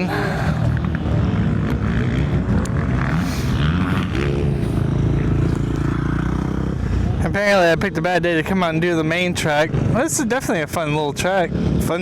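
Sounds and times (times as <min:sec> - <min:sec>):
motorcycle engine revving: 0:00.8 - 0:10.1.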